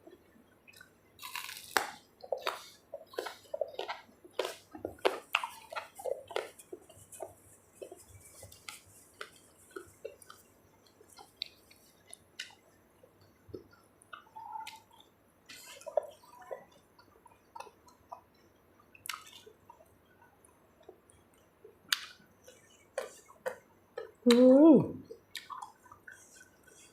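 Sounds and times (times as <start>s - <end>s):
lip smacks: 0.7s - 10.4s, 19.0s - 19.8s, 21.9s - 26.6s
wet chewing: 0.7s - 24.4s, 25.0s - 26.9s.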